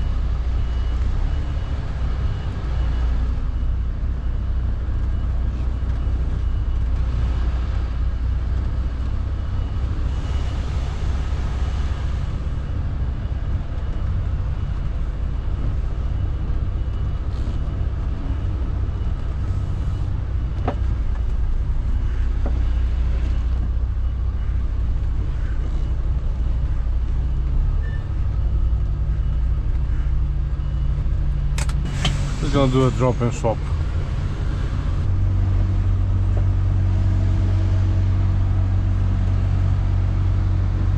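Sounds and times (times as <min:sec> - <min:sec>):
lorry diesel engine rumbling: 0:00.0 - 0:40.9
brief air hiss: 0:31.8 - 0:32.8.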